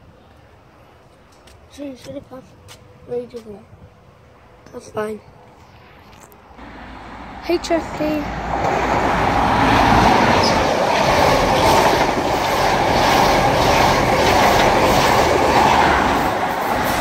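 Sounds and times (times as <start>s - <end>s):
train wheels rushing on rail: 6.6s - 17.0s
wheels clickety-clack: 9.9s - 17.0s.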